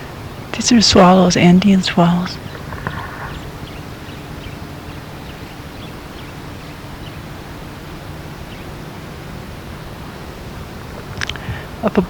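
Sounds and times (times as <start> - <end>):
swallows chirping: 0.0 - 8.8
river rushing: 0.0 - 12.0.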